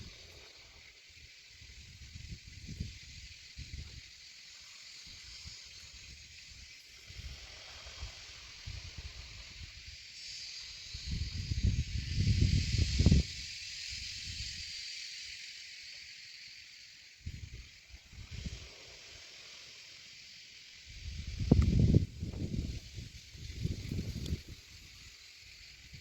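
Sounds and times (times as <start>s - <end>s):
steady high hiss: 0.0s - 26.0s.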